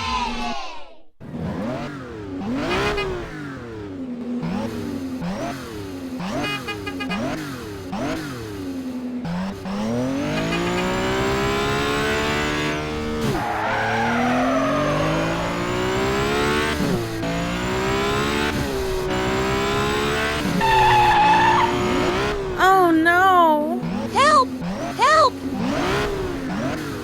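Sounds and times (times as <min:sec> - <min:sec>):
cartoon engine revving: 0:20.6 - 0:26.1.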